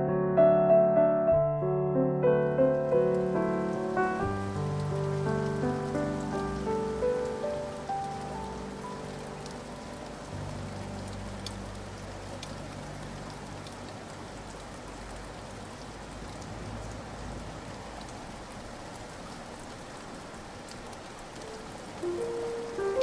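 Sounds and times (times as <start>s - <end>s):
musical notes: 0.0s - 13.4s, 22.0s - 23.0s
steady rain falling: 1.6s - 23.0s.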